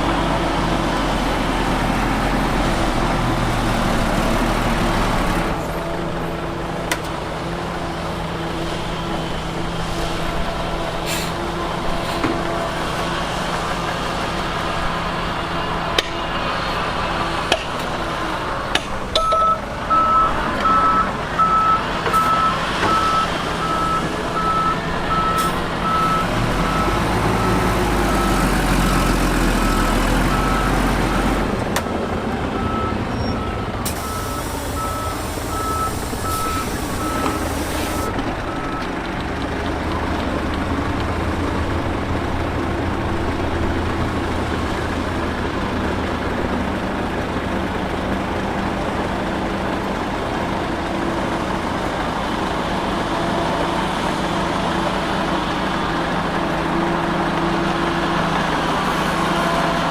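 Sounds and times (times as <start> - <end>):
diesel truck engine running: 0.0 - 59.9
reversing alarm beeping: 19.2 - 31.2, 31.9 - 39.0
air hissing: 33.8 - 38.1.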